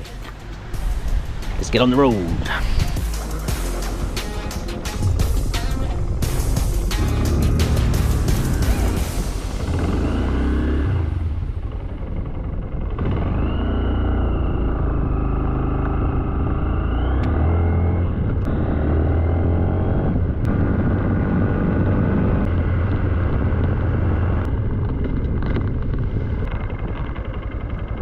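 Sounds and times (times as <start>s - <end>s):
motorcycle engine accelerating: 0.0s - 28.0s.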